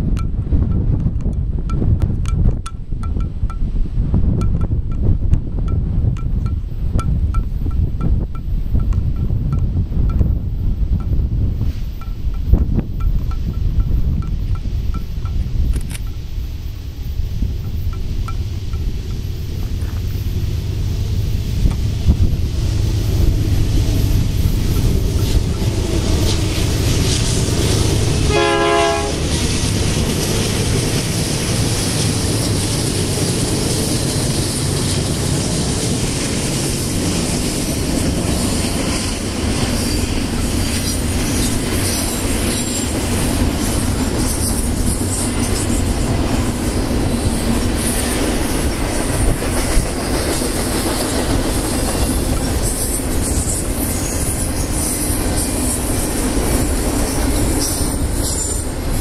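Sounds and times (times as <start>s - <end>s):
freight train rumbling past: 0.0s - 59.0s
train horn blast: 27.9s - 29.5s.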